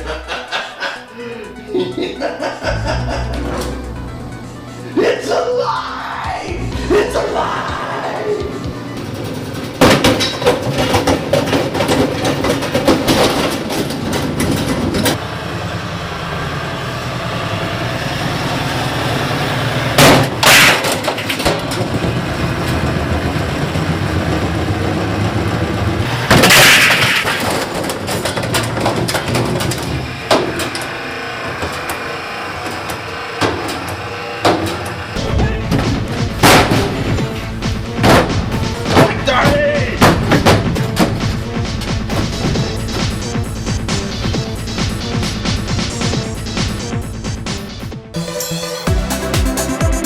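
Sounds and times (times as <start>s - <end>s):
washing machine banging: 8.9s - 15.2s, 19.9s - 47.7s
loud crashing impacts: 19.9s - 30.7s, 34.5s - 47.2s.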